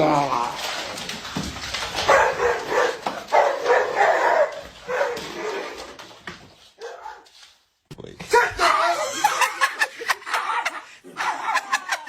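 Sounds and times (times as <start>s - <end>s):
dog barking: 2.1s - 5.8s, 6.8s - 7.3s.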